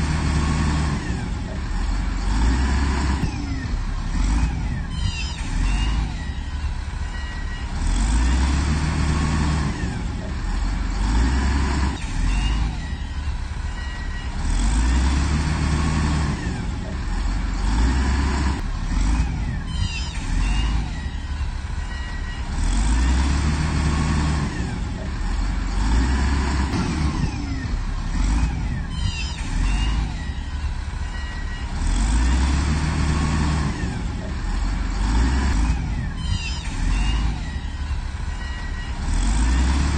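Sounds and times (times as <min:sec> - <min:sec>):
diesel machine engine revving: 0:00.0 - 0:39.9
high metallic squeals: 0:04.8 - 0:08.4, 0:19.6 - 0:23.2, 0:27.1 - 0:32.5, 0:35.9 - 0:39.6.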